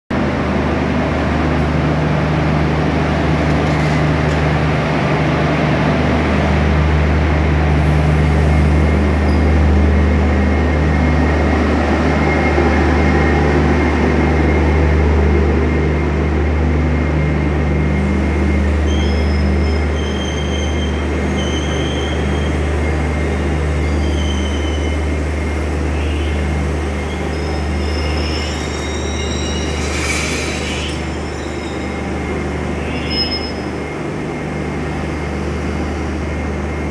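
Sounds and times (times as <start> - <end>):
train coaches rumbling past: 0.1 - 36.9
train brakes squealing: 18.0 - 36.1.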